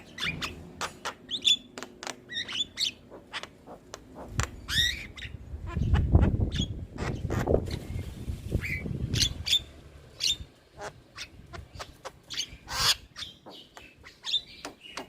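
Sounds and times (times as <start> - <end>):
bird clicks and chirps: 13.2 - 15.0.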